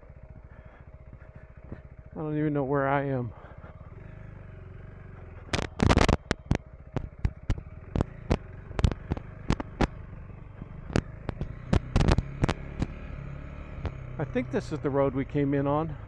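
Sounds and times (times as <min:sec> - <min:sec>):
motorcycle engine idling: 0:00.0 - 0:16.0
sharp knocks and clatter: 0:05.2 - 0:13.0.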